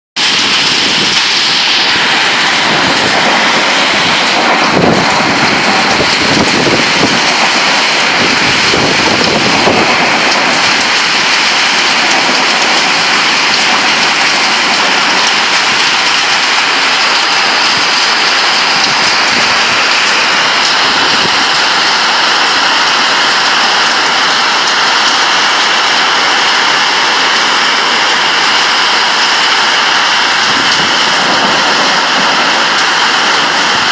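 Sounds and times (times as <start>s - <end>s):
heavy rain pouring: 0.2s - 33.9s
low rumbling: 0.2s - 33.9s.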